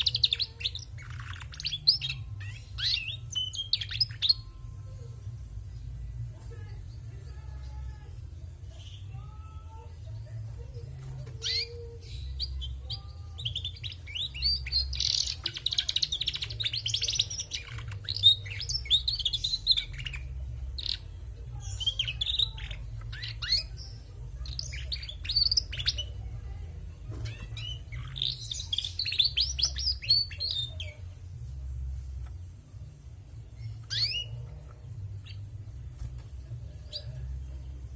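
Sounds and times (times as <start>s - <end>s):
canary twittering: 0.0s - 4.7s, 11.2s - 26.3s, 27.2s - 31.6s, 33.4s - 37.9s.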